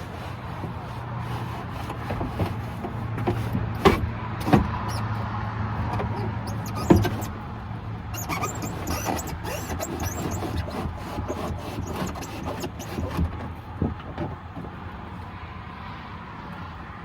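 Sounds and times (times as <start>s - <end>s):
window glass knocking and clunking: 1.8s - 5.1s, 5.8s - 7.4s, 8.1s - 15.0s.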